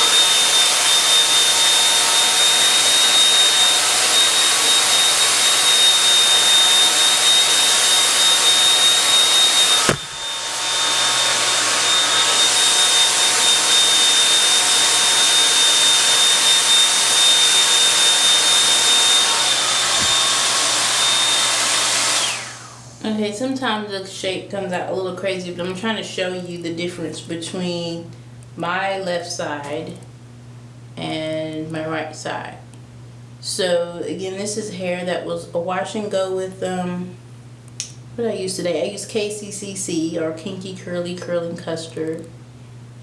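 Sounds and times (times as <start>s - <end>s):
hair dryer blowing air: 0.0s - 23.1s.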